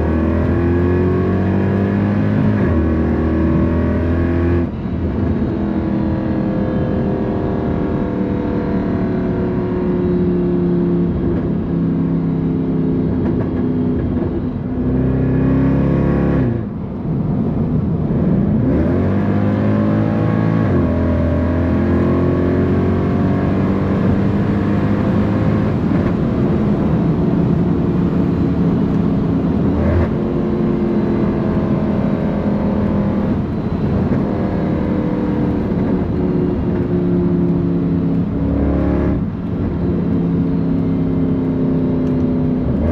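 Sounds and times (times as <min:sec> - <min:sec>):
car exhaust drone: 0:00.0 - 0:42.9.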